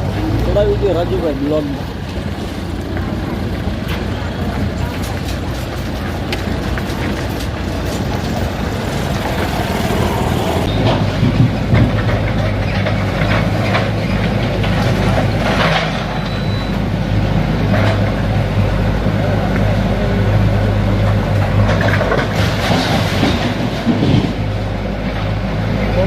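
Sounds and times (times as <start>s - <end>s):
wheels clacking: 0.0s - 17.0s
train rumbling on rails: 0.0s - 26.0s.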